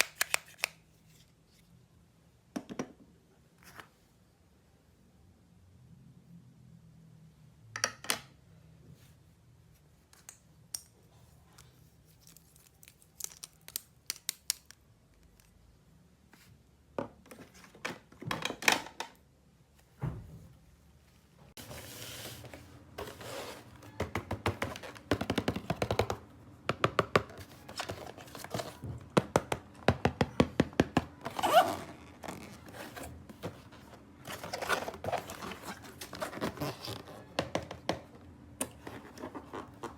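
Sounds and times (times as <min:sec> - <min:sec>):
packaging rustling: 0:31.2 - 0:37.2.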